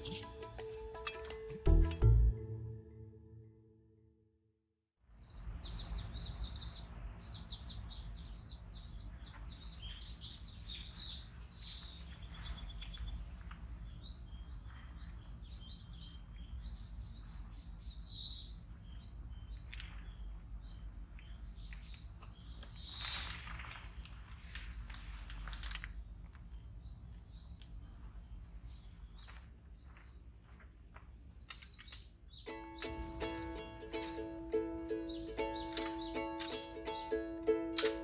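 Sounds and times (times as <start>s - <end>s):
birds chirping and trilling: 5.1s - 25.2s, 25.8s - 30.7s, 31.4s - 38.0s.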